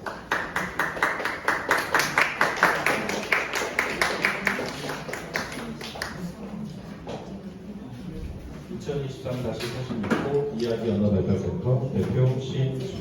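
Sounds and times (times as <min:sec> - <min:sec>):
audience clapping in rhythm: 0:00.0 - 0:06.2.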